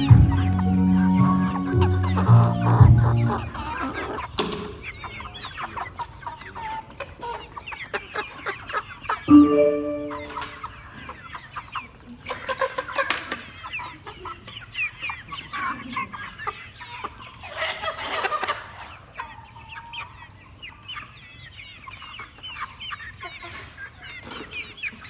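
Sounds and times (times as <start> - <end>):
chickens calling: 0.0 - 9.0.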